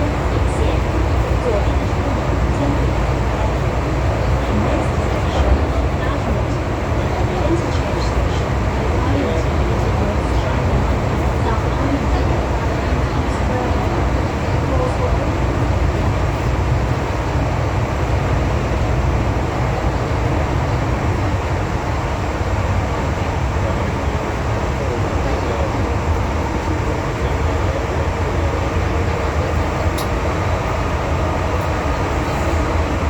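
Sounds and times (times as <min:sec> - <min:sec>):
metro train rumbling in tunnel: 0:00.0 - 0:33.0.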